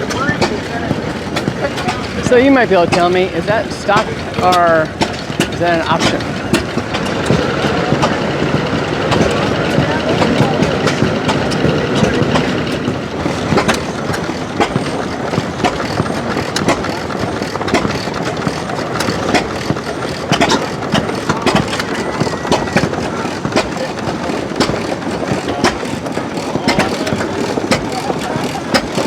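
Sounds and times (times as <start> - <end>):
machinery clattering: 0.0 - 29.0
sharp knocks and clicks: 0.0 - 29.0.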